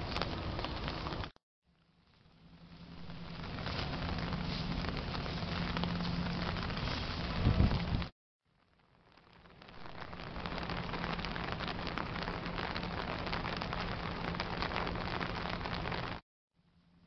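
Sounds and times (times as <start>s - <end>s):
rain pattering: 0.0s - 16.2s.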